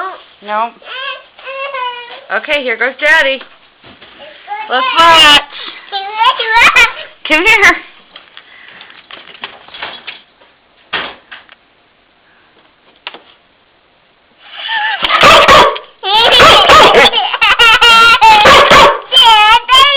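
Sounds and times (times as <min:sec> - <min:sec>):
dog barking and yelping: 0:15.0 - 0:19.9.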